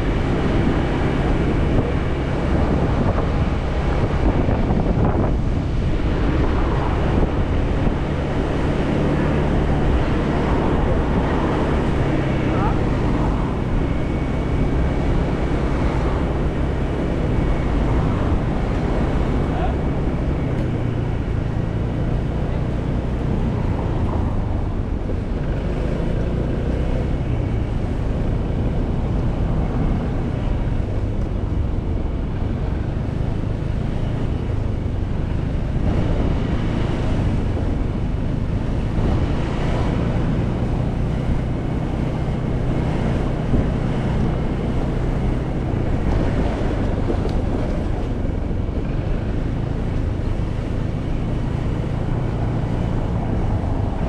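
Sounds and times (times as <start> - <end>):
motorcycle engine cruising: 0.0 - 54.0
wind rushing over microphone: 0.0 - 54.0.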